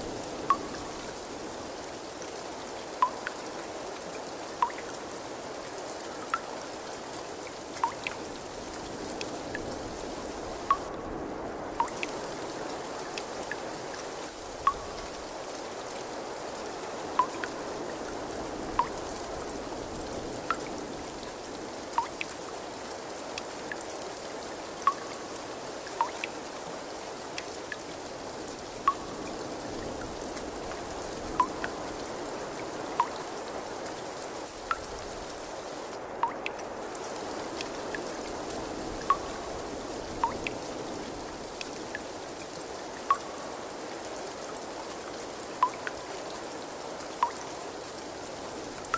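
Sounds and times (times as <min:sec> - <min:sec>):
water trickling: 0:00.0 - 0:11.0, 0:11.7 - 0:48.9
water drops plinking into water: 0:00.5 - 0:00.9, 0:03.0 - 0:03.5, 0:04.6 - 0:05.0, 0:07.8 - 0:08.2, 0:10.7 - 0:11.0, 0:11.8 - 0:12.2, 0:14.6 - 0:15.2, 0:17.2 - 0:17.6, 0:18.8 - 0:19.0, 0:20.4 - 0:20.7, 0:22.0 - 0:22.4, 0:24.8 - 0:25.2, 0:25.9 - 0:26.4, 0:28.8 - 0:29.3, 0:31.4 - 0:31.8, 0:33.0 - 0:33.3, 0:34.7 - 0:34.9, 0:36.2 - 0:36.6, 0:39.0 - 0:39.4, 0:40.2 - 0:40.6, 0:43.1 - 0:43.4, 0:45.6 - 0:46.1, 0:47.2 - 0:47.5.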